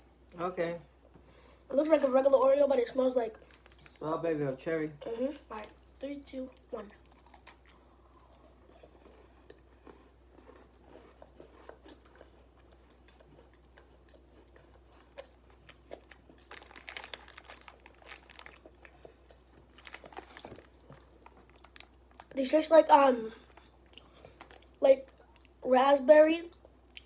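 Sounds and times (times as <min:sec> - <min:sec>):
person crunching a cookie: 0:07.0 - 0:22.4.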